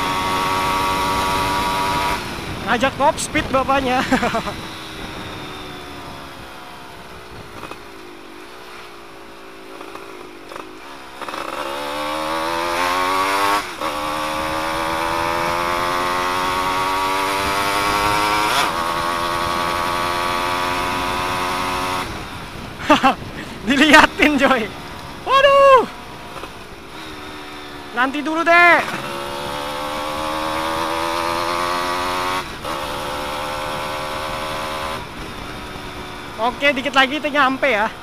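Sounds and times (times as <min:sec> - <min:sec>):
two-stroke engine accelerating: 0:00.0 - 0:38.0.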